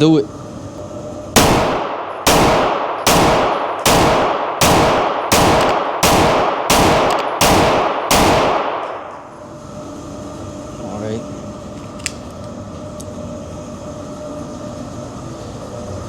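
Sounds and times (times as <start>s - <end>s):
pistol shots echoing: 1.4s - 9.0s.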